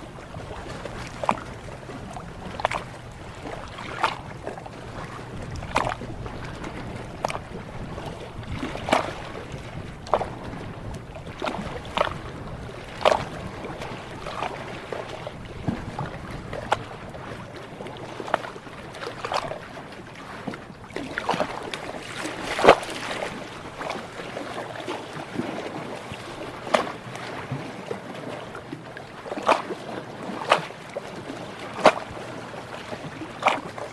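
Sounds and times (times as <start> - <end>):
ocean water lapping and splashing: 0.0 - 33.9.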